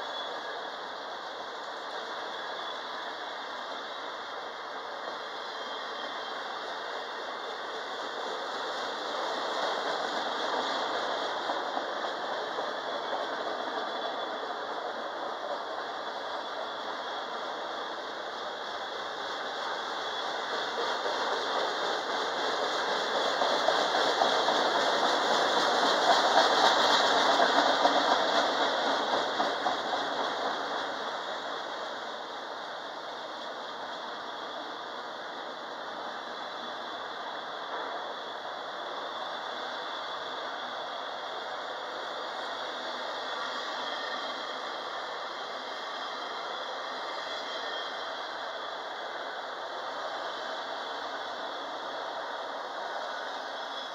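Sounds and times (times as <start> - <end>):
train wheels clattering over rail joints: 9.0 - 16.7, 19.9 - 31.8.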